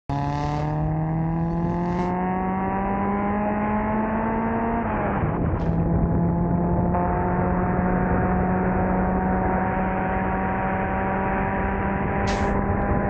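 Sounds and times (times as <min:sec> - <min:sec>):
car engine accelerating: 0:00.1 - 0:13.0.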